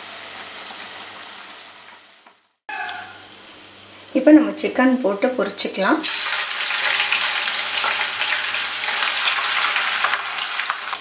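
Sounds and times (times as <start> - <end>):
chicken sizzling in hot oil: 0.0 - 2.2, 5.7 - 11.0.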